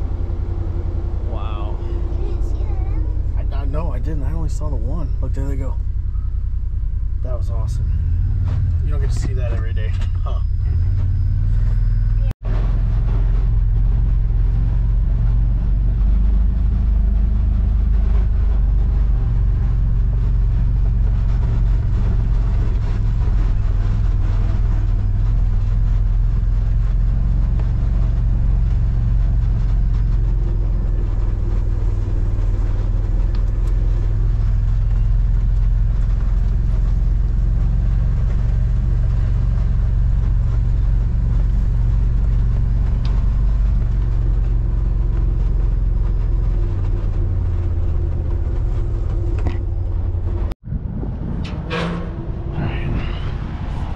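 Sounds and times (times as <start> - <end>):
vehicle engine and tyres rumbling: 0.0 - 53.9.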